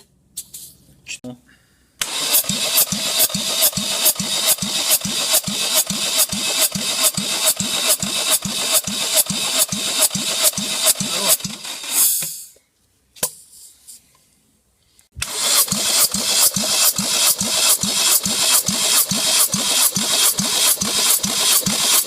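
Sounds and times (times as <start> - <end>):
car engine cranking: 2.0 - 12.1, 15.2 - 22.0.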